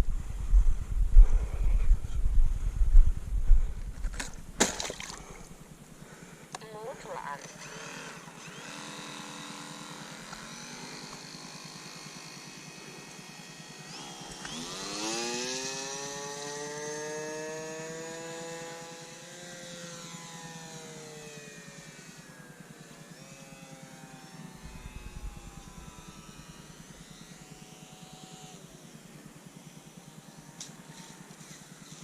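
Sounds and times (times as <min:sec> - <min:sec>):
model plane motor whining: 0:06.5 - 0:32.0.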